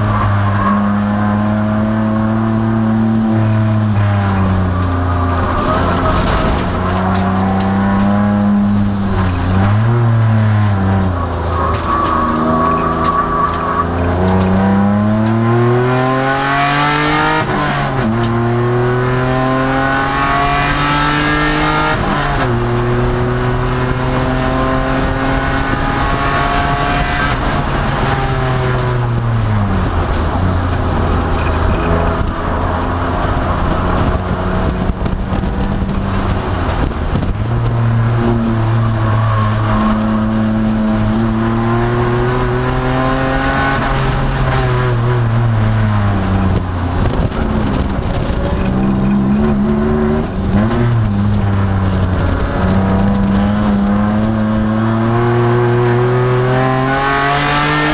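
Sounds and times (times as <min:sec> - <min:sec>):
race car engine revving: 0:00.0 - 0:57.9.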